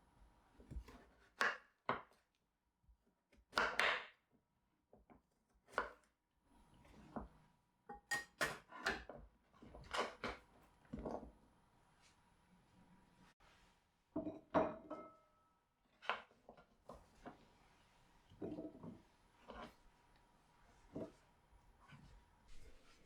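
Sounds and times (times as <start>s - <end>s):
knife chopping on cutting board: 0.7s - 2.2s, 3.5s - 4.2s.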